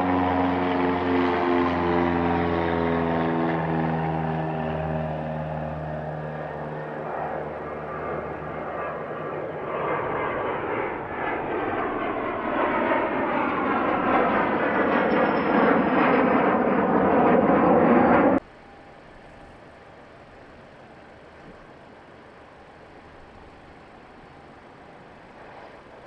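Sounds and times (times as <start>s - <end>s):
aircraft engine passing: 0.0s - 26.0s.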